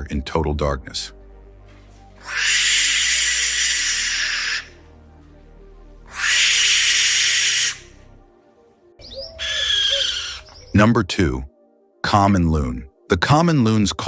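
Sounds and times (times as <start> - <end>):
soft background music: 0.0 - 14.0
barn owl screeching: 2.2 - 4.8, 6.1 - 8.0, 9.0 - 10.8.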